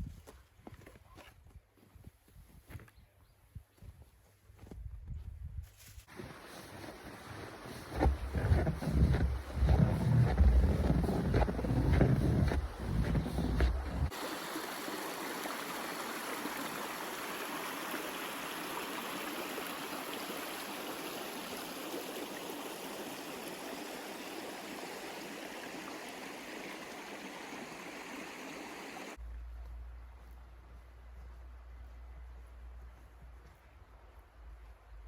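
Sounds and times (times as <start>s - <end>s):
flowing water rushing: 6.1s - 29.2s.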